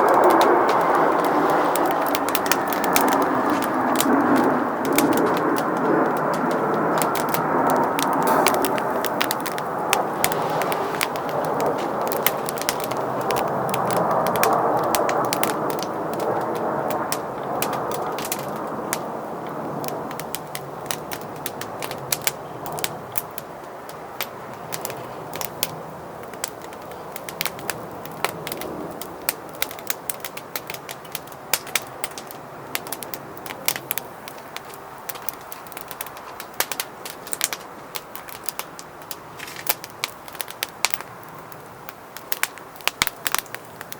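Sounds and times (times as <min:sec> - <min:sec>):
rushing noise: 0:00.0 - 0:16.5
wood fire crackling and popping: 0:00.0 - 0:43.9.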